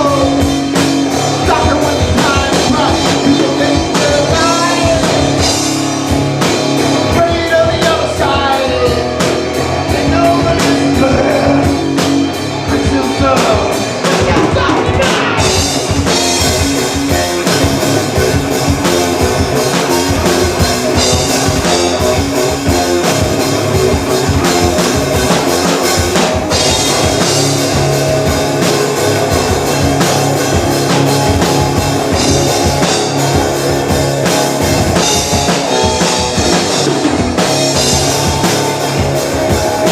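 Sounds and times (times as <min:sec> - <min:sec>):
person singing: 0:00.0 - 0:05.5, 0:07.0 - 0:12.0, 0:12.6 - 0:15.8
fast drum strokes: 0:00.0 - 0:39.9
live rock band playing: 0:00.0 - 0:39.9.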